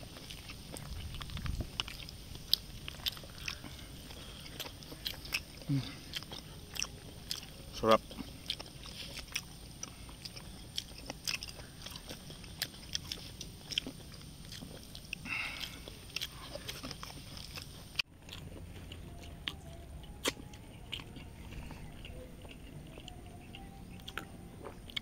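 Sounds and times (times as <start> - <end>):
wet chewing clicks and crunches: 0.0 - 25.0.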